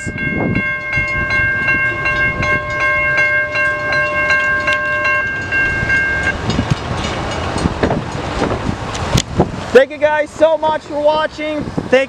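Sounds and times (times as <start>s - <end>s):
railroad crossing bells ringing: 0.0s - 9.0s.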